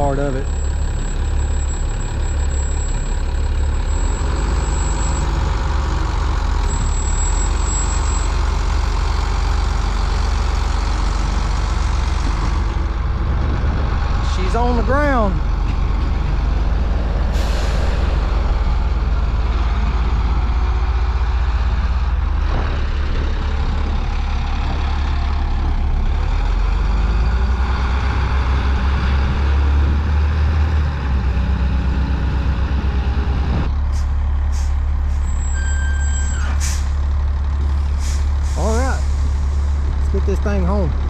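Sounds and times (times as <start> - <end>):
diesel truck engine rumbling: 0.0 - 41.0
air brake hiss: 17.3 - 18.0, 34.0 - 35.2, 36.2 - 37.0, 38.0 - 39.8.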